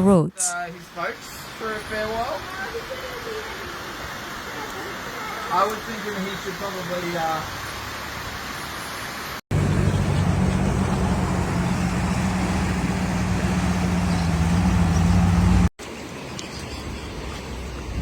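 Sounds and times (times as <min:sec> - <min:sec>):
vehicle engine running: 0:09.5 - 0:15.7.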